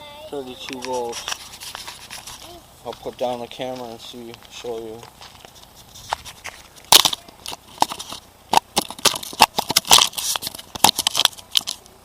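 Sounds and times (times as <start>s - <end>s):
camera being handled: 5.3s - 8.2s.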